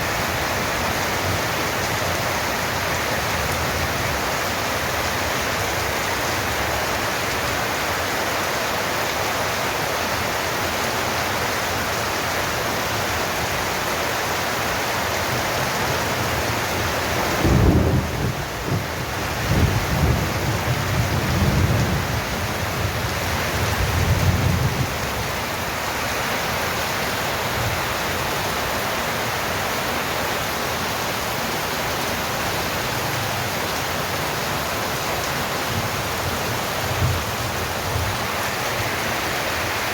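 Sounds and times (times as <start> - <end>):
heavy rain hiss: 0.0 - 39.9
rolling thunder: 17.3 - 22.2.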